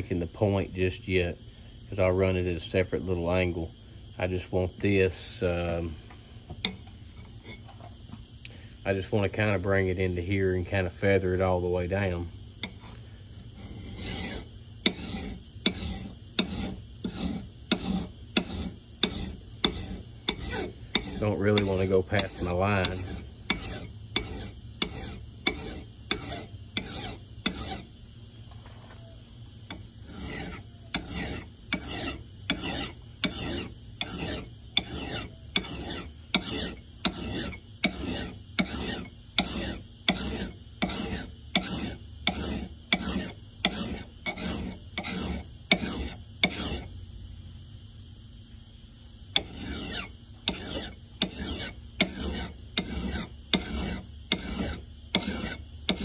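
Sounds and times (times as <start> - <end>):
file rasping on steel: 13.5 - 27.9, 29.7 - 46.9, 49.4 - 56.0.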